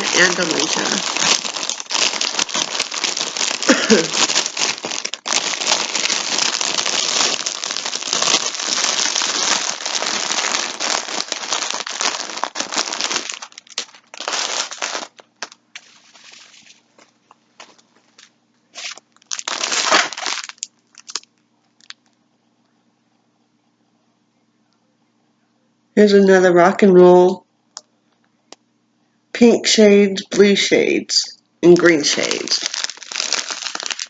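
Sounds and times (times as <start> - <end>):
packaging crinkling and rustling: 0.0 - 22.2, 31.7 - 34.0.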